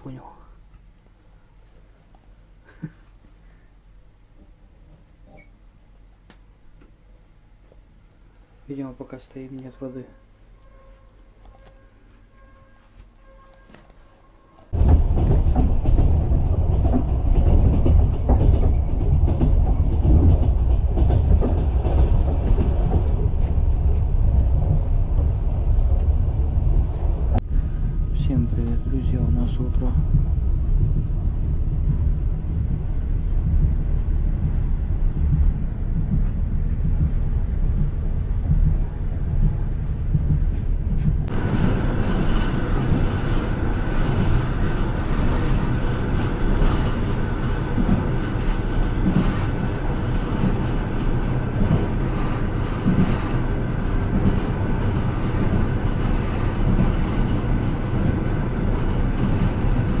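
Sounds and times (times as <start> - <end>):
rushing noise: 14.7 - 60.0
train wheels rumbling: 14.7 - 60.0
wheels knocking on track: 14.8 - 23.4.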